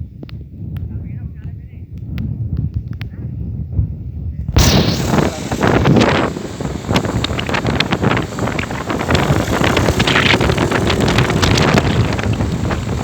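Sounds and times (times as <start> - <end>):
wind buffeting microphone: 0.0 - 13.0
low rumble: 3.4 - 13.0
sharp crackles: 4.5 - 13.0.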